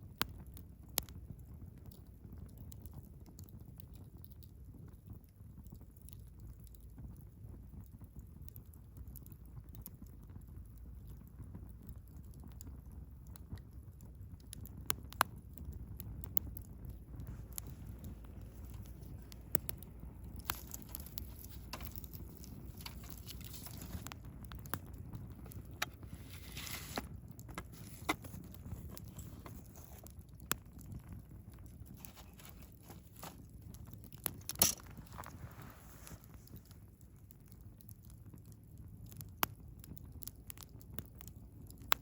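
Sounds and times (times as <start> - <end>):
low rumble of flame: 0.0 - 42.0
wood fire crackling and popping: 0.0 - 42.0
fire hissing: 17.0 - 37.0.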